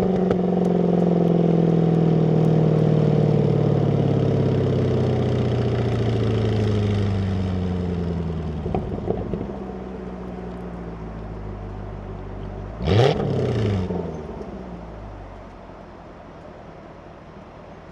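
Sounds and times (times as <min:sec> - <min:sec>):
car engine droning: 0:00.0 - 0:17.9
exhaust pops: 0:08.6 - 0:09.8.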